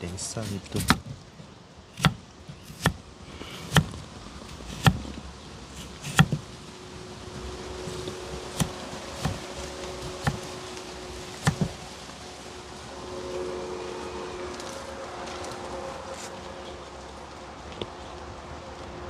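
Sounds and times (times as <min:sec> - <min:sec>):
faint steady hum: 0:00.0 - 0:19.0
knife chopping on cutting board: 0:00.8 - 0:01.2, 0:02.0 - 0:03.0, 0:03.6 - 0:03.9, 0:04.5 - 0:05.0, 0:05.8 - 0:06.4, 0:08.6 - 0:09.4, 0:10.2 - 0:10.5, 0:11.5 - 0:11.8.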